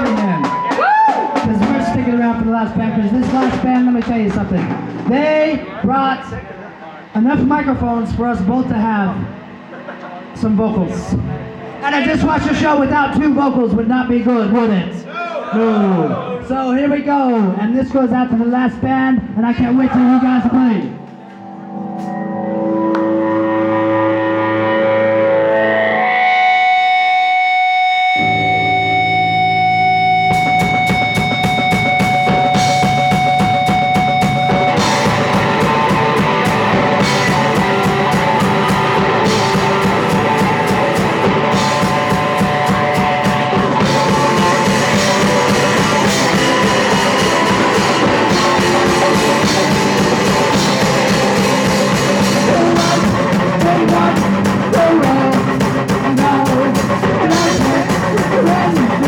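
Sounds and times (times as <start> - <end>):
fast drum beat: 0.0 - 5.8, 30.3 - 59.0
punk rock band playing live: 0.0 - 6.3, 21.0 - 59.0
low bass notes: 20.4 - 59.0
held guitar note: 21.0 - 54.8.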